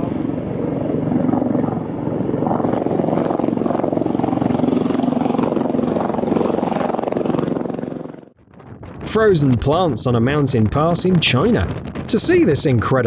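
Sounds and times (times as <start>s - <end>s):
helicopter engine and rotor: 0.0s - 8.4s.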